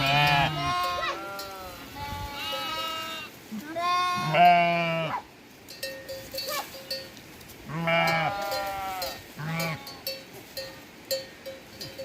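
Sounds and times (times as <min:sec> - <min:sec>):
sheep bleating: 0:00.0 - 0:05.2, 0:07.7 - 0:10.0
faint clinks: 0:05.6 - 0:07.2, 0:08.0 - 0:12.0.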